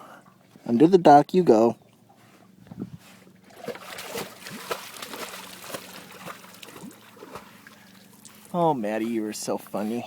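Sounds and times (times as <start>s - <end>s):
water sloshing and trickling: 0.0s - 10.0s
small water splashes: 3.4s - 9.2s.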